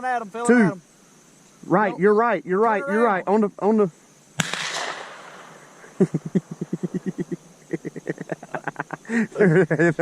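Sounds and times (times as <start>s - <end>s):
shotgun shot echoing: 4.4s - 5.8s
person laughing: 5.8s - 10.0s.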